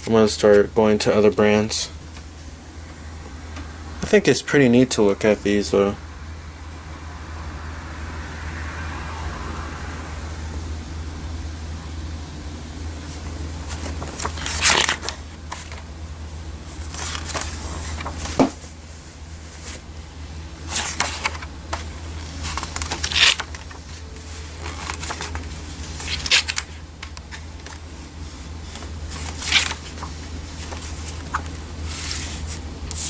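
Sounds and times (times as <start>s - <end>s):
steady low hum: 0.0s - 33.0s
paper pages rustling: 13.0s - 15.9s, 16.7s - 20.0s, 20.6s - 33.0s.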